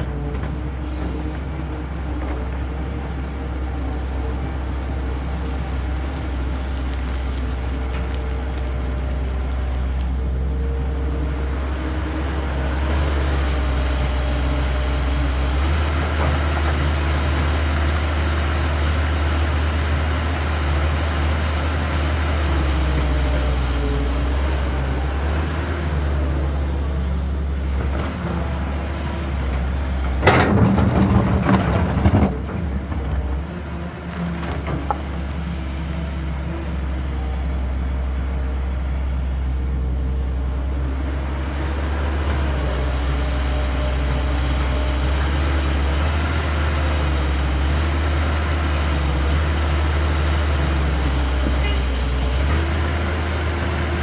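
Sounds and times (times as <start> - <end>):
diesel engines droning: 0.0 - 54.0
loud rattling clatter: 30.0 - 33.4.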